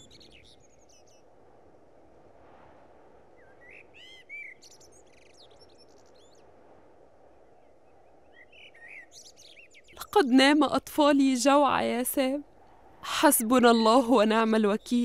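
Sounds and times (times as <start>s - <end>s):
low background hiss: 0.0s - 15.0s
songbird chirps and whistles: 3.4s - 6.4s, 7.6s - 10.1s.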